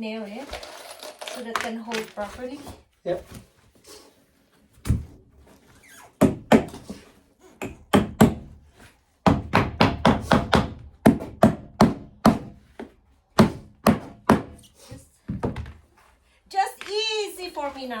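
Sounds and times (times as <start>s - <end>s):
hammer driving nail into wood: 6.2s - 7.0s, 7.6s - 8.5s, 9.3s - 12.6s, 13.4s - 14.6s.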